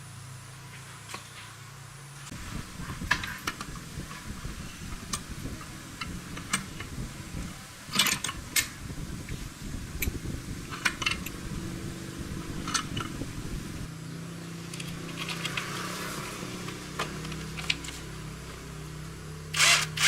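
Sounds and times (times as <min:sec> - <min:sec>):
steady low hum: 0:00.0 - 0:15.1.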